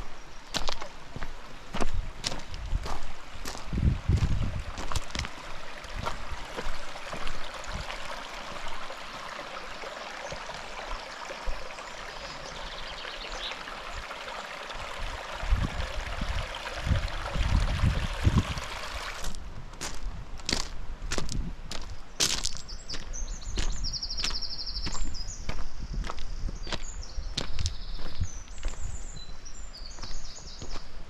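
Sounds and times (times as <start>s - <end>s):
stream running over rocks: 0.0s - 19.4s.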